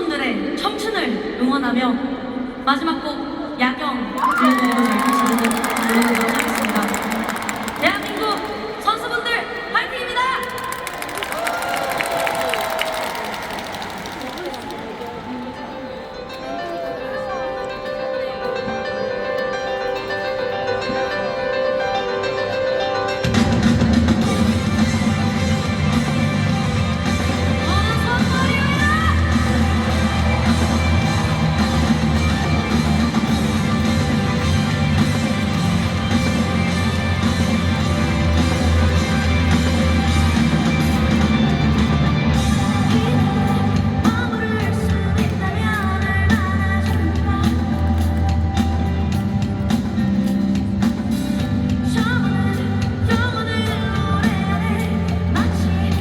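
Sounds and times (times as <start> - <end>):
live rock band playing: 22.6 - 56.0
lead vocalist singing: 42.4 - 48.6, 51.4 - 56.0.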